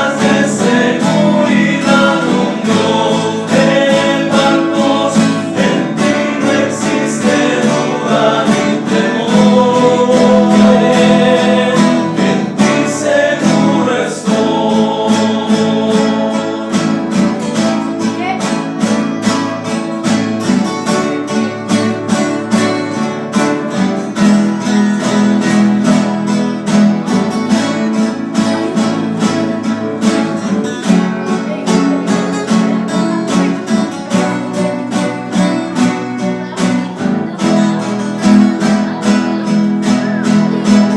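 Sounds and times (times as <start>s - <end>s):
men singing: 0.0s - 18.0s
acoustic guitars strumming: 0.0s - 40.9s.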